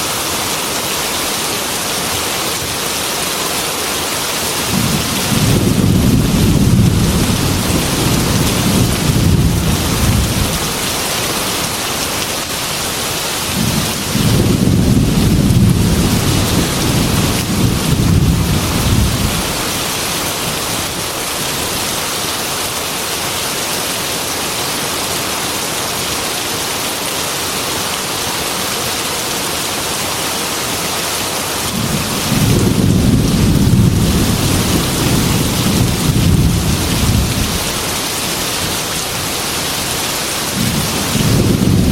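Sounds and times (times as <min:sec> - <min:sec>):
heavy rain pouring: 0:00.0 - 0:41.9
thunder rumbling: 0:04.6 - 0:12.1, 0:13.5 - 0:21.0, 0:31.7 - 0:41.9.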